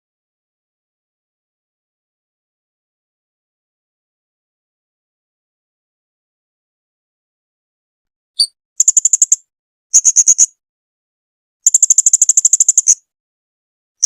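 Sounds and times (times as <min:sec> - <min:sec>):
parrot chirp: 0:08.4 - 0:10.5, 0:11.7 - 0:13.0.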